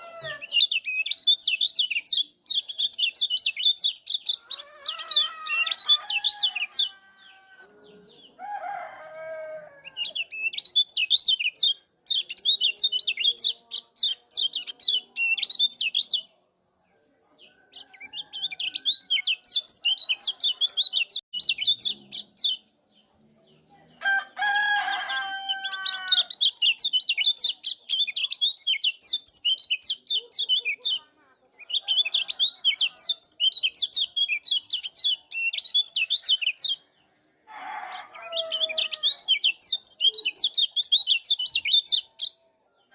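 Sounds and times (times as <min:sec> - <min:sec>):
bird high rapid chirps: 0:00.0 - 0:06.9, 0:10.0 - 0:16.4, 0:17.7 - 0:22.7, 0:25.2 - 0:36.9, 0:38.1 - 0:42.4.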